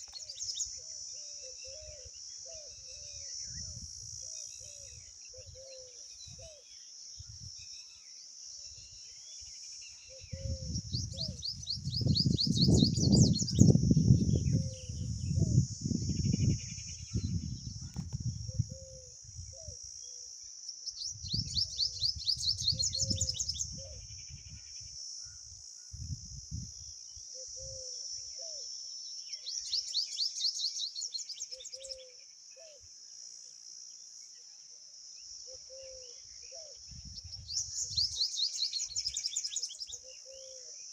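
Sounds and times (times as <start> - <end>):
high insect drone: 0.0 - 40.9
songbird trilling: 10.1 - 19.8, 20.9 - 24.1, 29.4 - 32.8, 35.5 - 40.6.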